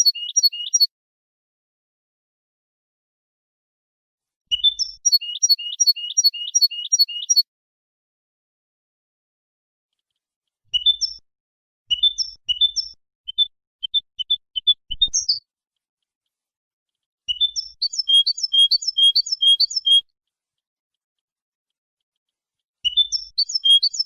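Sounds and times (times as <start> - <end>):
bird repeated notes: 0.0 - 0.9, 17.3 - 20.0, 22.9 - 24.0
goldfinch twittering: 0.0 - 0.9.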